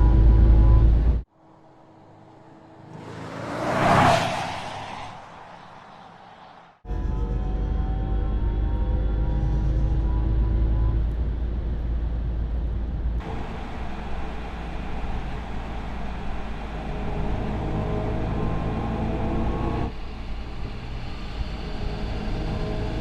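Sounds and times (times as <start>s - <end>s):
electric car driving: 13.2s - 23.0s.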